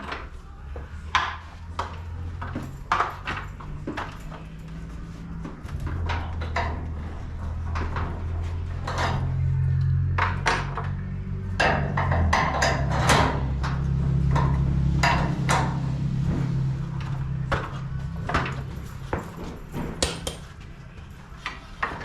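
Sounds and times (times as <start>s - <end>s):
metal tools knocking and clanking: 19.2s - 20.6s.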